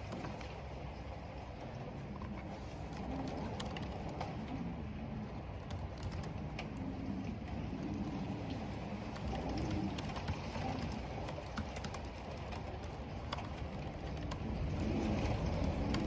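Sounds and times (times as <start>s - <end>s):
wind and rain: 0.0s - 16.0s
computer keyboard typing: 9.1s - 16.0s.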